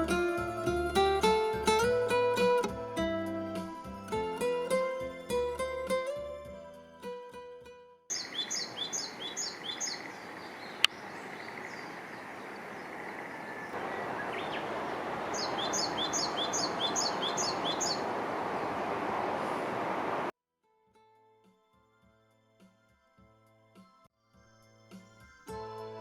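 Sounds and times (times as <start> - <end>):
steady outdoor hiss: 0.0 - 6.5, 8.1 - 20.3
bird calling in descending notes: 8.1 - 20.3.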